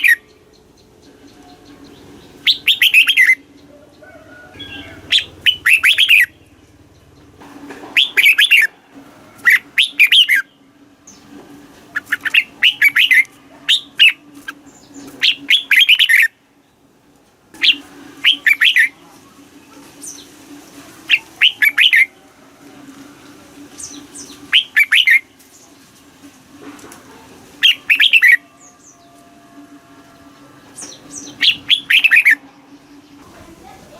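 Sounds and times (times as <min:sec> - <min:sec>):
bird singing whistled notes: 0:00.0 - 0:03.5, 0:04.6 - 0:06.5, 0:09.5 - 0:10.5, 0:12.0 - 0:14.2, 0:14.9 - 0:16.3, 0:17.6 - 0:18.9, 0:21.1 - 0:22.1, 0:23.8 - 0:25.3, 0:27.6 - 0:29.2, 0:30.8 - 0:32.4
faint steady hum: 0:00.0 - 0:33.9.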